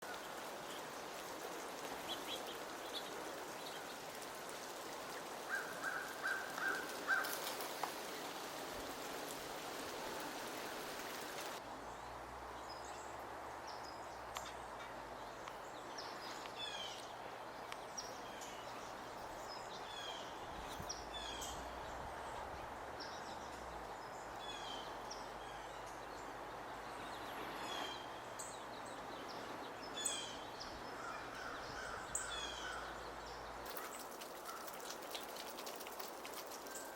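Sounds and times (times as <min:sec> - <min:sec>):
small birds chirping: 0:00.0 - 0:36.9
steady outdoor hiss: 0:00.0 - 0:36.9.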